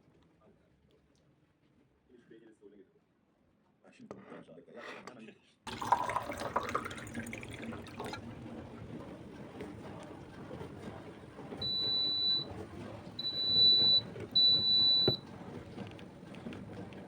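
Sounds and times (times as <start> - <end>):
high-pitched appliance beeps: 11.6 - 15.3.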